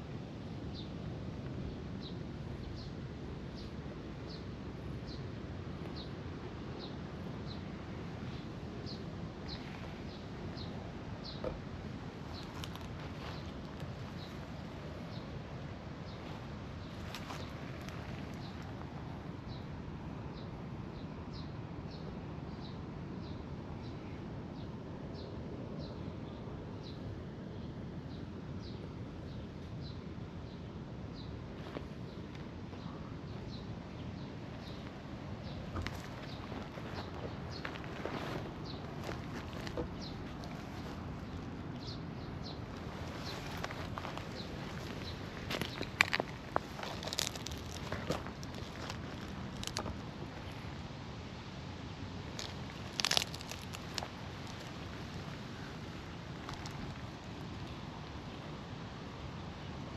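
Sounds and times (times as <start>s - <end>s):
bird chirping: 32.1s - 49.9s.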